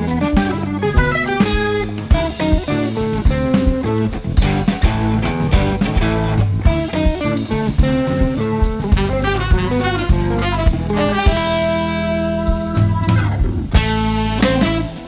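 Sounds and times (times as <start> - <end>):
jazz-rock band playing: 0.0 - 15.0
tenor saxophone: 8.9 - 13.0, 13.8 - 15.0.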